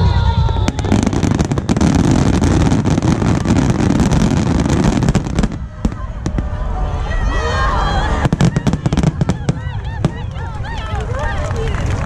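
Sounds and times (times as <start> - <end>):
fireworks booming: 0.0 - 6.8, 8.0 - 10.4
fireworks crackling: 0.0 - 6.8, 8.0 - 12.0.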